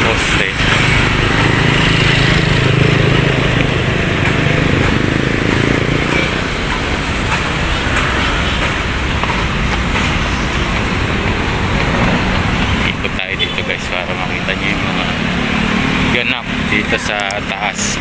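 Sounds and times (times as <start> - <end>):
road traffic passing: 0.0 - 18.0.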